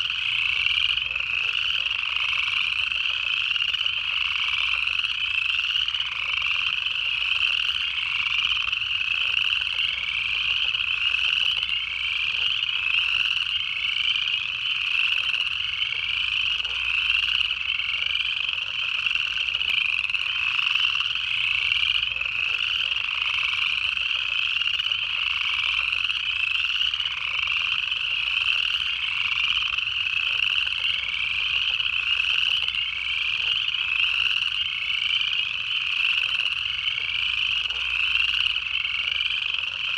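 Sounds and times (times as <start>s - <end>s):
chorus of frogs trilling: 0.0s - 39.9s.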